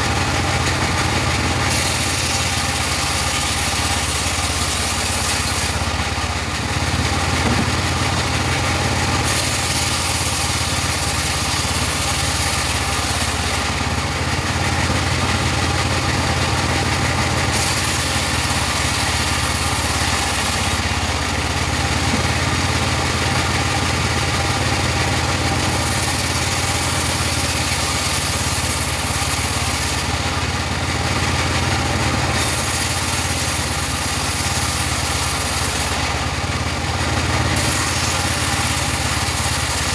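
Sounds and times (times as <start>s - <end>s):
sawmill engine hum: 0.0s - 39.9s
high hiss of sawing: 1.6s - 6.1s, 9.1s - 14.0s, 16.5s - 20.9s, 25.3s - 30.2s, 32.3s - 36.2s, 37.4s - 39.9s.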